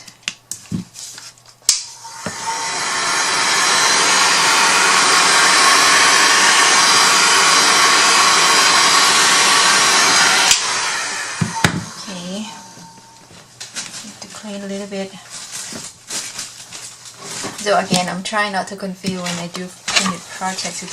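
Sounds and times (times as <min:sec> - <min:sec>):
heat tool blowing air: 0:01.7 - 0:13.3.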